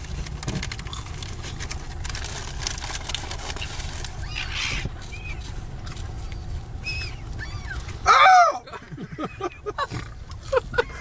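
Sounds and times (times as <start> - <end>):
rustling: 0.0 - 8.0
steady low rumble: 0.0 - 11.0.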